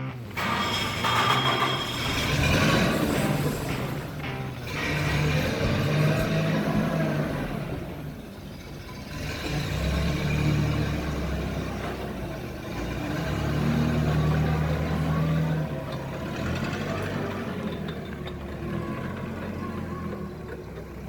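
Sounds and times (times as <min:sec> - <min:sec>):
forklift engine revving: 0:00.0 - 0:21.0.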